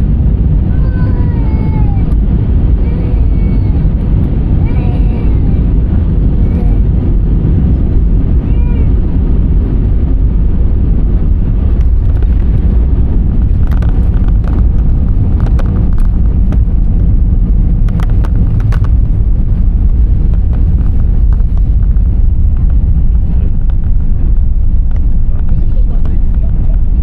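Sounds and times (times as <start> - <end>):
airliner engine rumble: 0.0 - 27.0
sharp clicks and rattles: 11.4 - 27.0.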